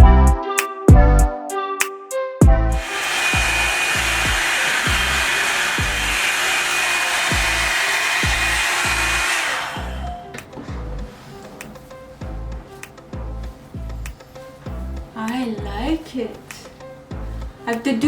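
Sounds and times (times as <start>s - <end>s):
background music with steady beat: 0.0s - 18.0s
hair dryer brush blowing air: 2.7s - 10.3s.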